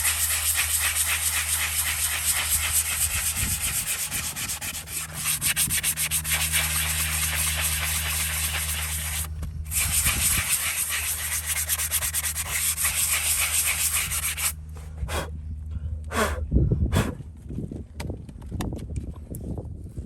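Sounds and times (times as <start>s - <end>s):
power sander grinding hoof: 0.0s - 14.6s.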